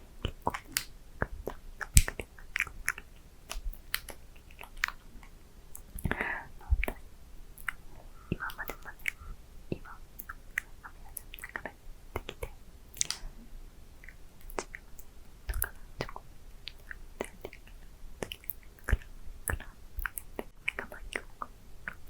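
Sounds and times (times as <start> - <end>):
wet mouth clicks and lip smacks: 0.2 - 7.0, 7.6 - 13.3, 14.0 - 22.0
faint whispering: 6.0 - 7.0, 7.7 - 12.6, 19.0 - 22.0.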